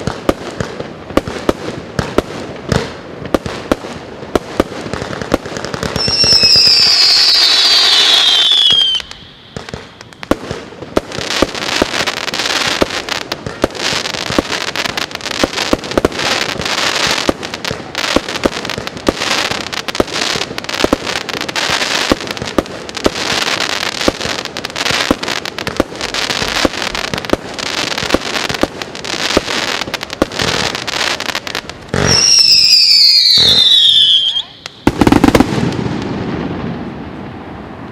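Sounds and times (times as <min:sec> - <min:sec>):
firework pops and crackles: 0:00.0 - 0:36.9
whistling firework shot: 0:05.9 - 0:10.3, 0:32.0 - 0:36.1.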